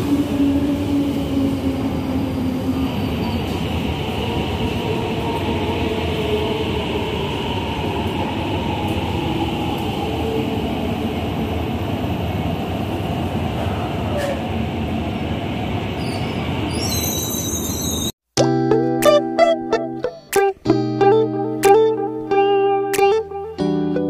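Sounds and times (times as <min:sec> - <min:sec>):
train wheels on rail: 0:00.0 - 0:18.1.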